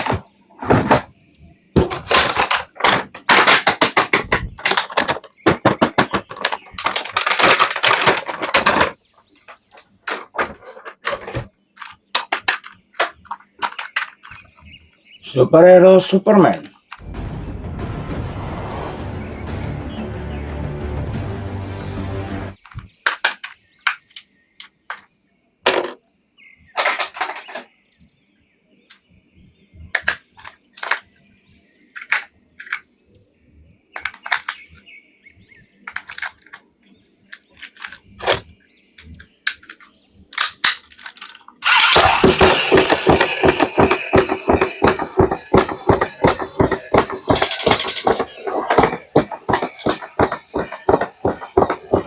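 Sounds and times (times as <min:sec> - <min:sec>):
rapid plastic crackling: 0:01.8 - 0:14.8, 0:35.8 - 0:52.0.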